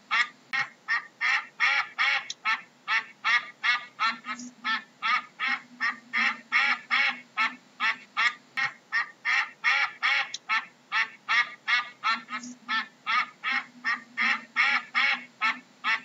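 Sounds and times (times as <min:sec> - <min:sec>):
duck quacking: 0:00.1 - 0:16.0.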